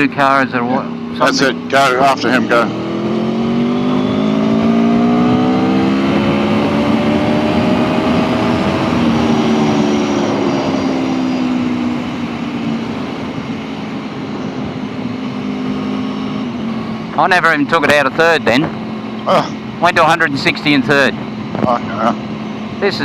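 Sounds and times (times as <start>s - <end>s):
motorcycle engine accelerating: 0.0s - 23.0s
wind noise: 0.9s - 17.1s.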